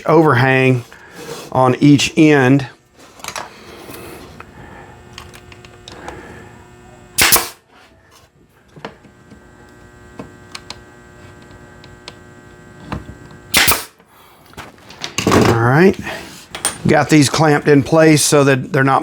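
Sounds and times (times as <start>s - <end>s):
steady hum: 0.0s - 7.7s, 8.3s - 19.0s
nail gun firing: 7.2s - 7.6s, 13.5s - 14.0s.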